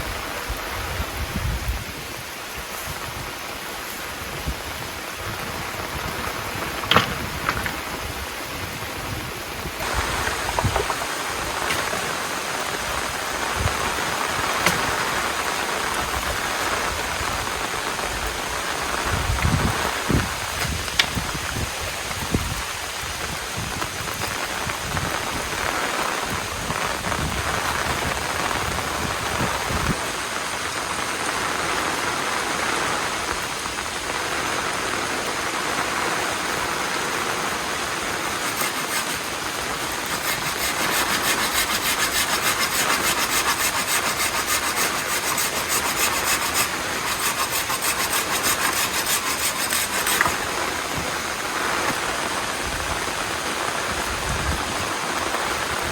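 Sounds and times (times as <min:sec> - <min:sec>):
heavy rain falling: 0:00.0 - 0:55.9
fast even rasping rhythm: 0:38.2 - 0:50.5.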